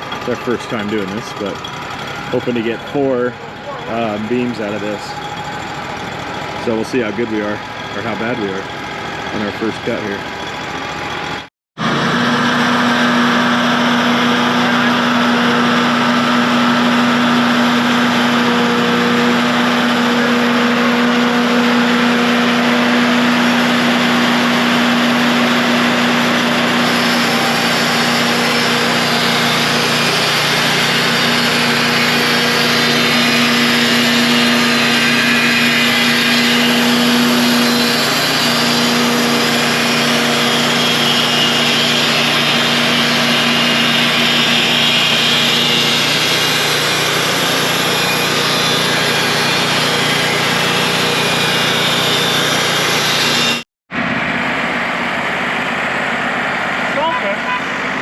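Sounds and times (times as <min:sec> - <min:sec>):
sawmill engine humming: 0:00.0 - 0:58.0
band blade cutting log: 0:11.8 - 0:53.6.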